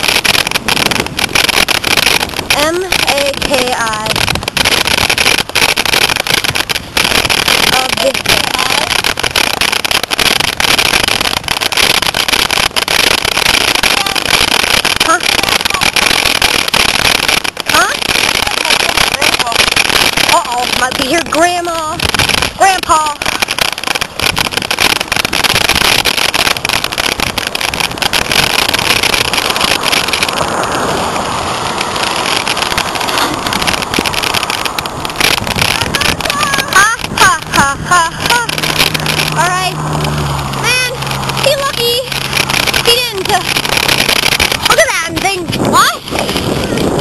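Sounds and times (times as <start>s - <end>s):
wind buffeting microphone: 0.0s - 47.0s
handling and bike clicks: 23.2s - 41.5s.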